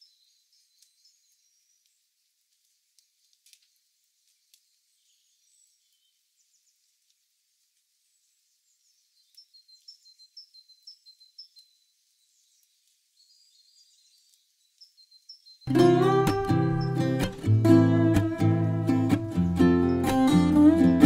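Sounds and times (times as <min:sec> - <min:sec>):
faint high-pitched bird chirps: 0:00.0 - 0:02.0, 0:08.2 - 0:21.0.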